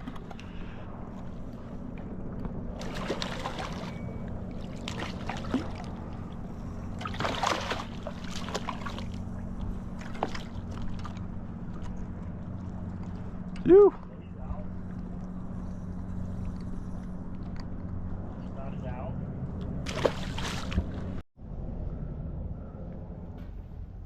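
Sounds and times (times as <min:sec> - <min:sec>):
steady low hum: 0:00.0 - 0:24.0
water splashing around a kayak: 0:02.8 - 0:14.2, 0:19.8 - 0:21.2.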